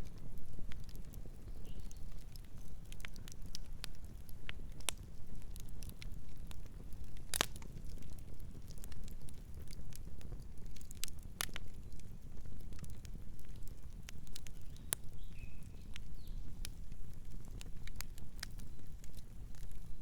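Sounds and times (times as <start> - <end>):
burning wood crackles and pops: 0.0 - 20.0
campfire low rumble: 0.0 - 20.0.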